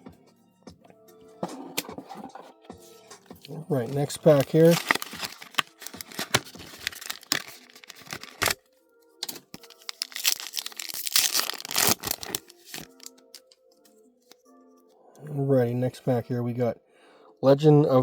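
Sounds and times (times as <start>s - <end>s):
faint background music: 0.0s - 18.0s
foil wrapper tearing and crinkling: 3.8s - 8.6s, 9.2s - 13.6s.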